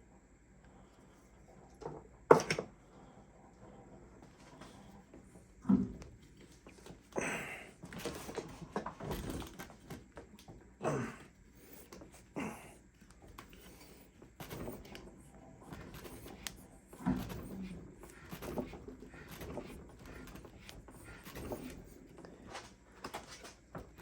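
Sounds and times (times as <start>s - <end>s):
metal clunks and scraping: 11.6s - 24.0s.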